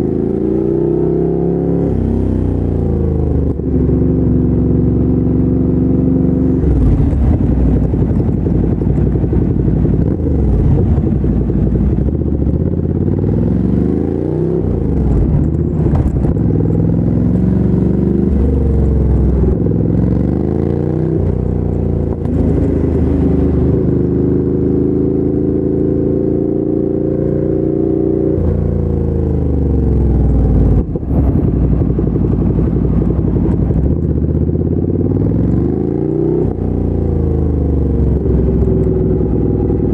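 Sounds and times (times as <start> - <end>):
motorcycle engine accelerating: 0.0 - 39.9
wind noise: 6.5 - 24.4, 29.7 - 36.6.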